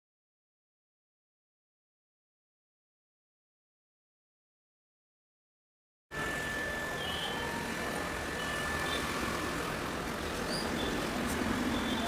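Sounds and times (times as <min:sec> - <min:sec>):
constant high-pitched tone: 0:06.1 - 0:12.0.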